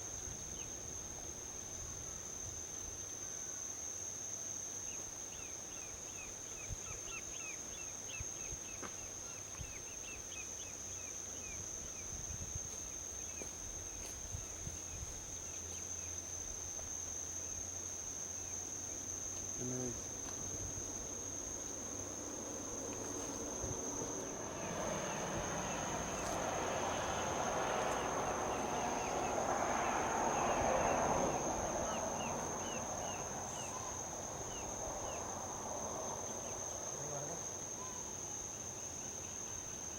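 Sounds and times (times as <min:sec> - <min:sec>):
insect trilling and chirping: 0:03.2 - 0:39.9
distant traffic rumble: 0:17.8 - 0:38.2
vehicle passing: 0:20.8 - 0:37.6.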